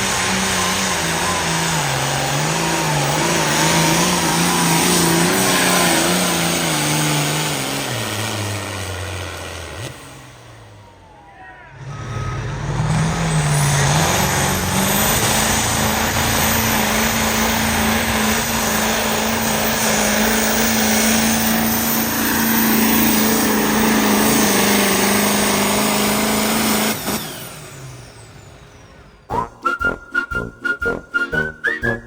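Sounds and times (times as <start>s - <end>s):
engine running flat out: 0.0s - 32.0s
rhythmic music: 29.3s - 32.0s.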